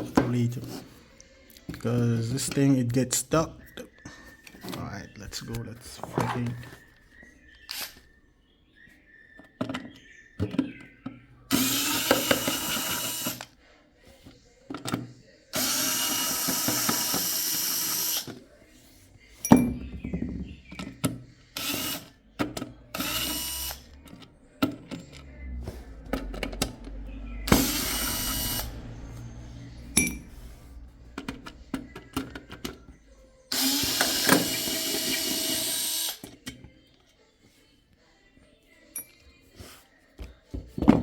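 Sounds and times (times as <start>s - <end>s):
electric screwdriver running: 11.5s - 13.5s, 15.6s - 18.3s, 21.6s - 22.1s, 22.9s - 23.9s, 27.5s - 28.8s, 33.5s - 36.2s.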